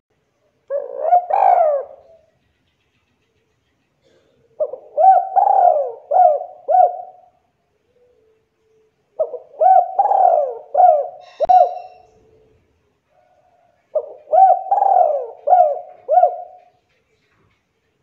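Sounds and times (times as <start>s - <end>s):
dove cooing: 0.7s - 2.3s, 4.0s - 8.3s, 9.1s - 12.1s, 13.4s - 16.8s.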